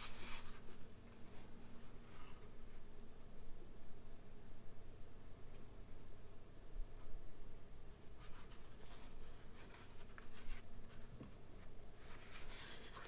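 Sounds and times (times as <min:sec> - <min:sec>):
hands rustling packaging: 0:12.0 - 0:13.0.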